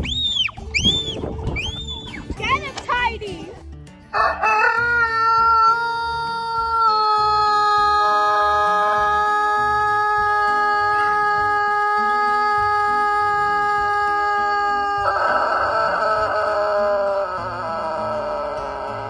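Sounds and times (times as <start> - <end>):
music with rhythmic bass line: 0.0 - 11.6
rooster crowing: 4.1 - 19.0.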